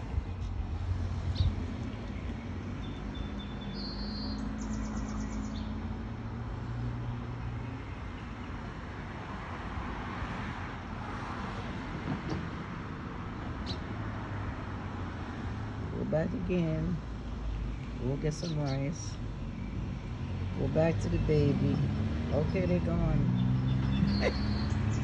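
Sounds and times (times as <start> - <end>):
road traffic: 0.0 - 25.0
high bird chirps: 2.8 - 5.8, 23.3 - 25.0.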